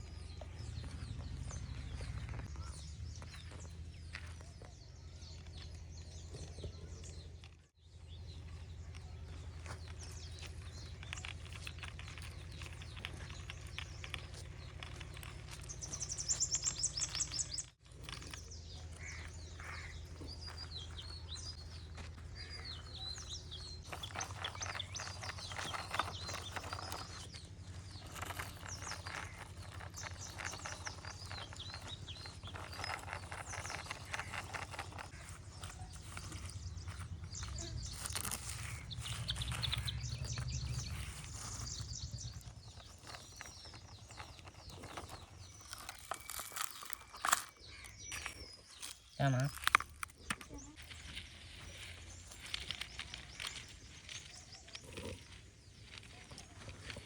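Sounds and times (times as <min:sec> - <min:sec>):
birds chirping and calling: 0:00.0 - 0:57.0
rapid high bird chirps: 0:15.3 - 0:17.8.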